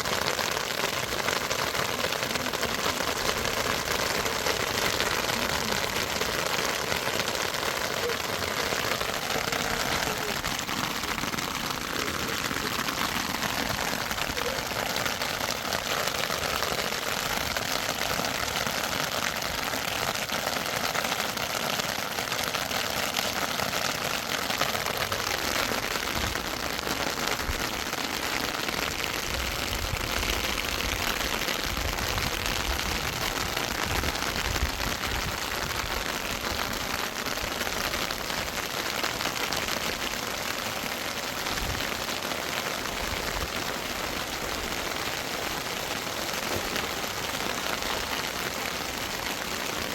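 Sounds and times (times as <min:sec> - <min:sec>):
heavy rain falling: 0:00.0 - 0:49.9.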